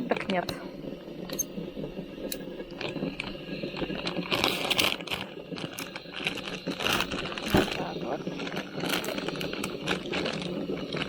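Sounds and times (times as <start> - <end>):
plastic packaging crinkling: 3.8 - 11.0.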